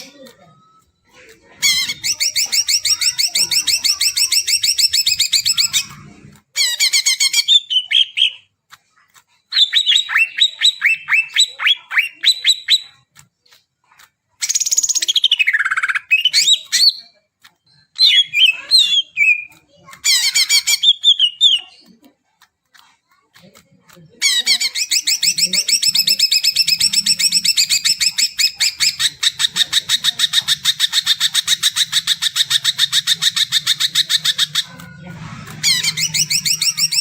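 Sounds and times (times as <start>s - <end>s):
bird singing chattering trills: 0.0s - 6.0s, 14.4s - 22.0s, 24.2s - 37.0s.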